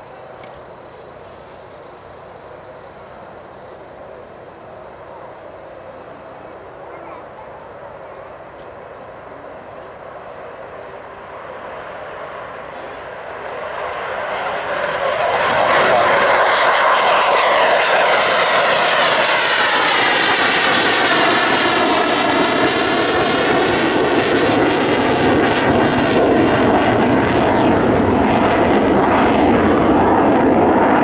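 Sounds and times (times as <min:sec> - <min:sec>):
jet engines roaring: 0:00.0 - 0:31.0.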